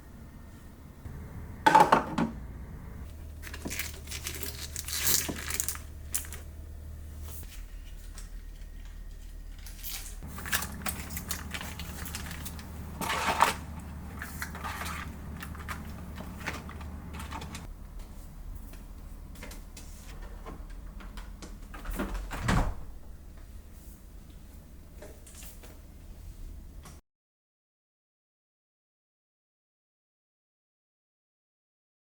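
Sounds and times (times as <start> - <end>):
low hum: 0.0 - 21.4
objects clattering: 1.6 - 2.5, 3.2 - 6.5, 9.1 - 17.7.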